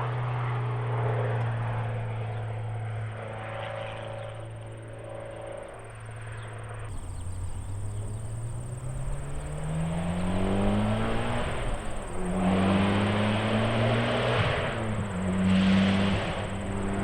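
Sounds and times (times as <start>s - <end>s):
car engine accelerating: 6.9s - 17.0s.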